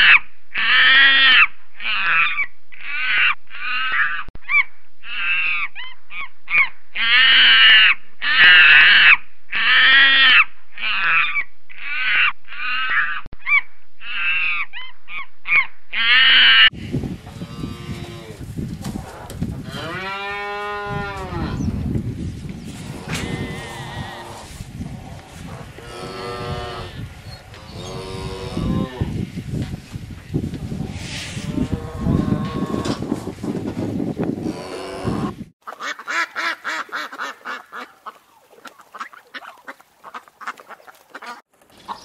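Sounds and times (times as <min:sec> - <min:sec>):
wind: 0:00.0 - 0:42.0
cow mooing: 0:17.4 - 0:18.4, 0:19.6 - 0:21.6, 0:22.8 - 0:24.5, 0:25.1 - 0:29.2, 0:31.4 - 0:33.0, 0:34.4 - 0:35.4.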